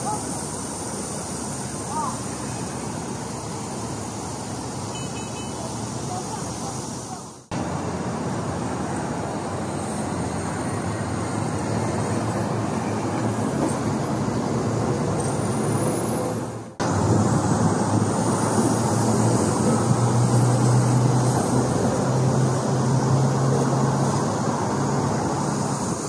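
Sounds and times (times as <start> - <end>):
metro train rumbling: 5.9 - 26.0.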